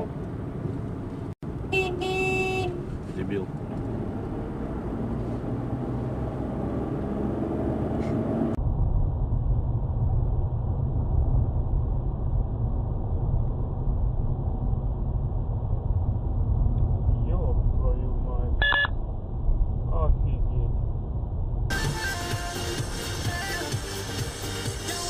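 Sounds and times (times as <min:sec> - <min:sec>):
road and engine noise: 0:00.0 - 0:25.0
heavy low rumble: 0:08.0 - 0:23.5.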